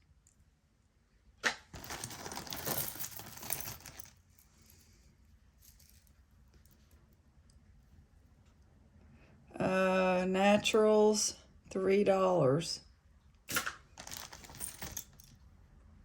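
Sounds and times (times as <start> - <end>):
jewelry clinking and rustling: 1.7 - 7.2, 13.5 - 15.5.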